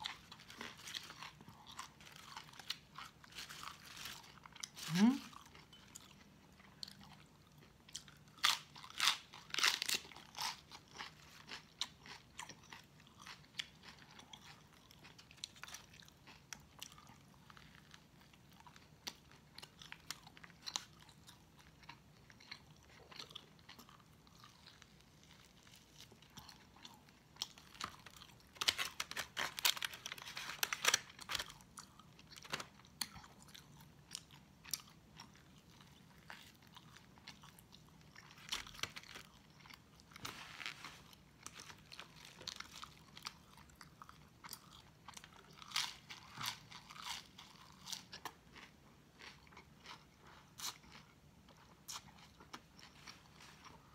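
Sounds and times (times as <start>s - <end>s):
chewing and mouth sounds: 0.0s - 30.0s.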